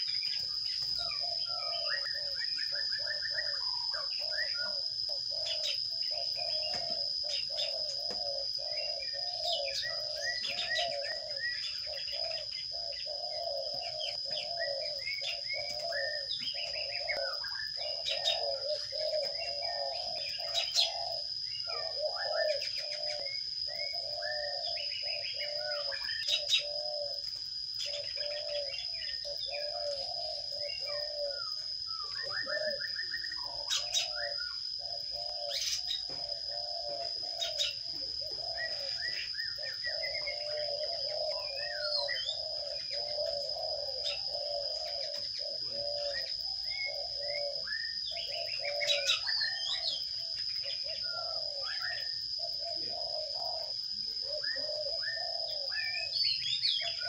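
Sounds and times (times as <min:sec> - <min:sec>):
doves cooing: 0:00.0 - 0:57.0
sparrows chirping: 0:00.0 - 0:57.0.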